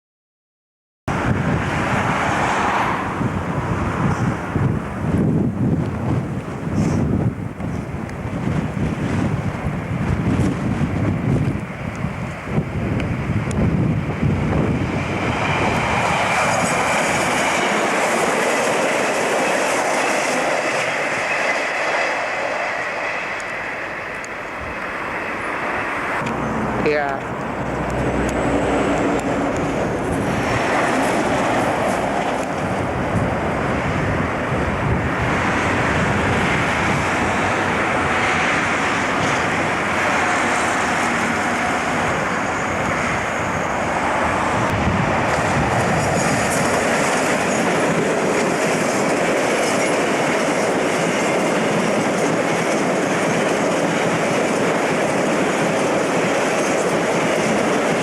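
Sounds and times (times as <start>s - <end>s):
train wheels clattering on track: 14.6s - 26.4s, 27.2s - 58.0s.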